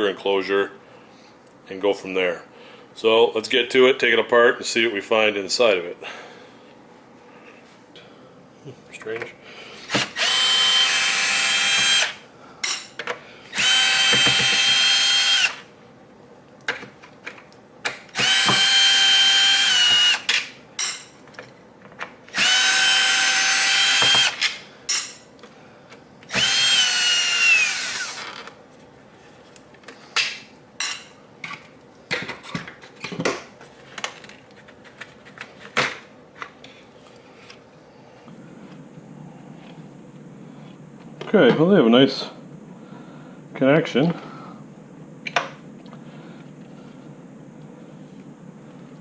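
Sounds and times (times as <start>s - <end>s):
cordless drill whining: 9.9s - 12.2s, 13.5s - 15.7s, 18.1s - 20.3s, 22.3s - 24.4s, 26.3s - 28.5s
parts being handled: 28.1s - 37.7s.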